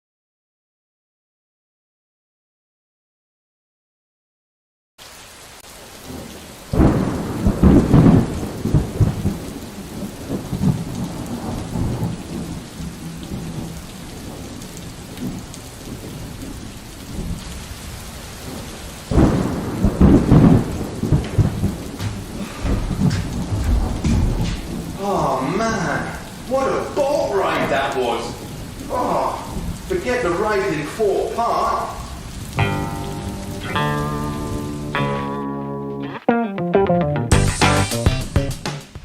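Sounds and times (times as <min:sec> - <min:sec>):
heavy rain: 0:05.0 - 0:35.6
thunder rumbling: 0:06.0 - 0:35.0.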